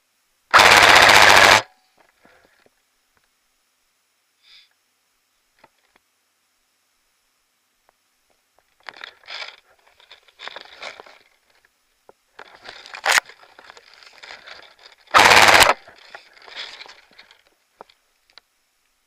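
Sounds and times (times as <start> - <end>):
airsoft rifle full-auto burst: 0.5 - 1.8, 15.1 - 15.9
rustling and shuffling: 7.8 - 15.2, 15.8 - 19.0.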